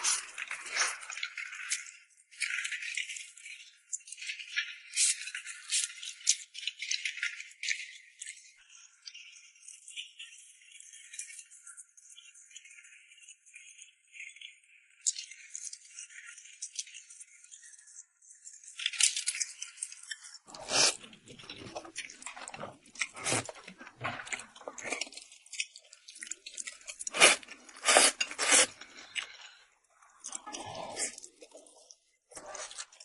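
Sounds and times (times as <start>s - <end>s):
person chewing noodles: 20.5s - 33.0s.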